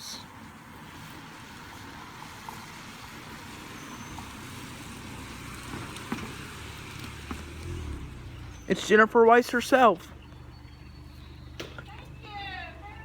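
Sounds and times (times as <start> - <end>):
light rain falling: 0.6 - 8.3.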